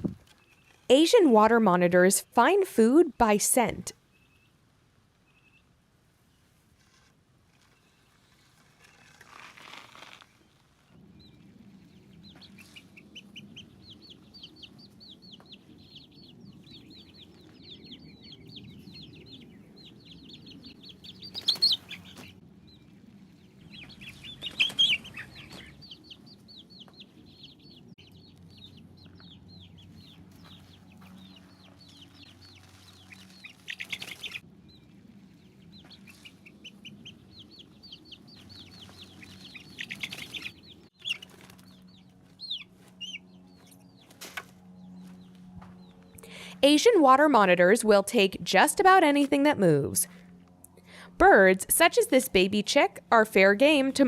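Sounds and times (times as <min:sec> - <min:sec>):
chicks peeping: 0:11.0 - 0:46.5.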